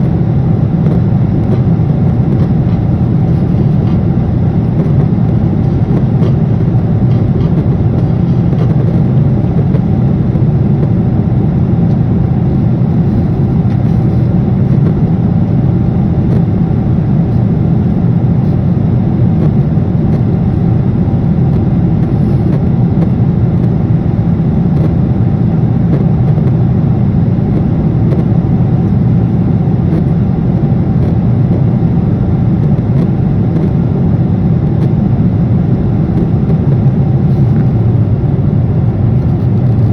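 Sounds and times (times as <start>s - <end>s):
jet airliner cabin drone: 0.0s - 39.9s.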